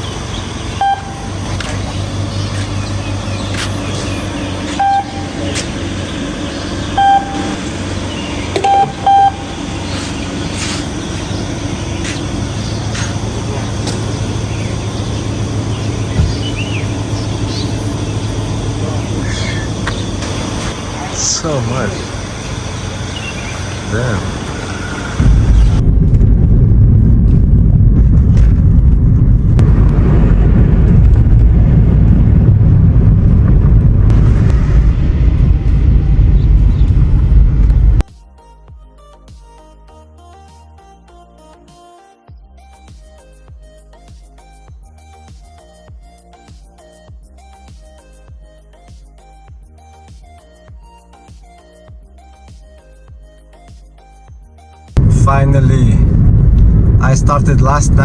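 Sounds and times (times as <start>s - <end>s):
vehicle running on road: 0.0s - 38.0s
short high beeps: 4.8s - 5.3s, 7.0s - 7.6s, 8.6s - 9.5s
wind buffeting microphone: 9.5s - 21.0s, 22.0s - 38.0s, 55.0s - 58.0s.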